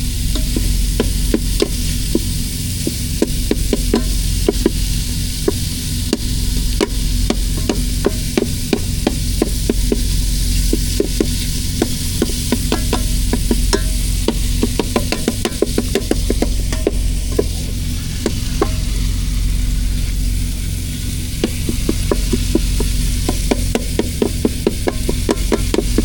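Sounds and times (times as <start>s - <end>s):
low hum: 0.0s - 26.0s
meat sizzling in a frying pan: 0.0s - 26.0s
utensil scraping and tapping pan: 0.3s - 19.2s, 21.4s - 26.0s.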